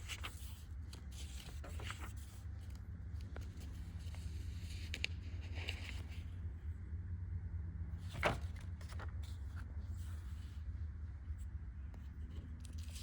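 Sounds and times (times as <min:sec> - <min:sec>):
paper rustling: 0:00.0 - 0:06.2, 0:08.0 - 0:10.5.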